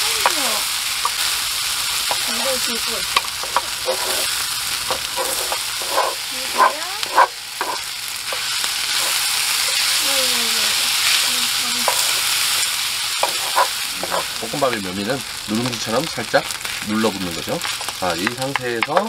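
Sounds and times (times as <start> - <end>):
rice sizzling on a griddle: 0.0 - 19.0
wooden spatula scraping a pan: 3.4 - 4.3, 4.9 - 10.0, 11.8 - 14.4.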